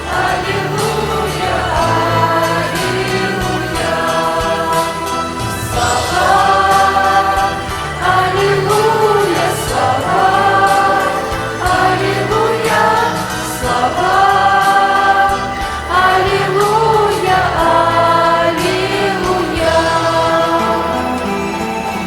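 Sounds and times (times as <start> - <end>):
choir singing: 0.0 - 22.0
instrumental accompaniment: 0.0 - 22.0.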